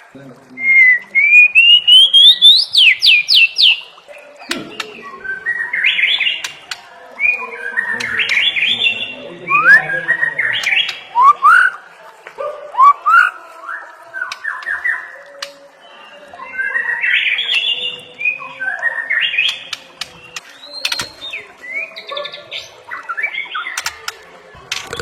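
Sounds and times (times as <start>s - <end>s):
songbird singing chirps and trills: 0.0s - 25.0s
sharp clicks: 23.8s - 25.0s.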